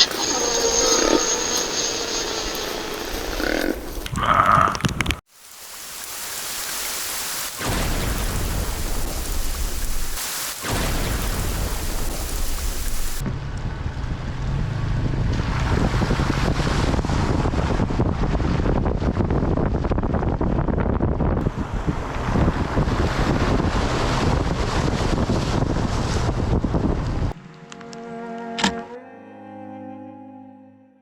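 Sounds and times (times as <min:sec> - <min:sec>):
steady rain falling: 0:05.3 - 0:13.2
wind buffeting microphone: 0:11.0 - 0:27.4.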